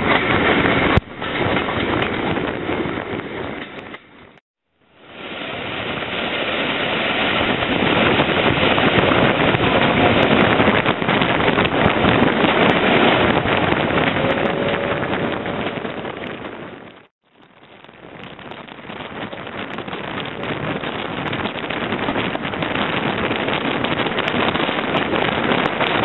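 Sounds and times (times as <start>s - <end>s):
wind buffeting microphone: 0.0s - 4.4s, 5.1s - 26.0s
train running noise: 0.0s - 17.1s.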